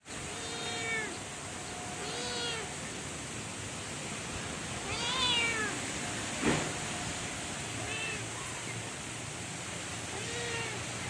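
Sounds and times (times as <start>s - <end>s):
steady hiss: 0.0s - 11.0s
cat meowing: 0.3s - 1.2s, 2.0s - 2.7s, 4.8s - 5.8s, 7.8s - 8.3s, 10.1s - 10.9s.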